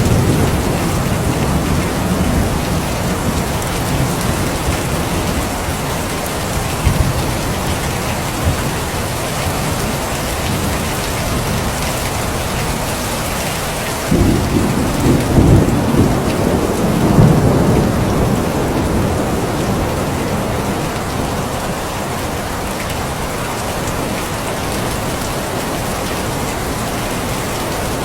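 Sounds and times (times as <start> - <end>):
low rumble of thunder: 0.0 - 11.9, 14.1 - 21.9
heavy rain hissing: 0.0 - 28.0.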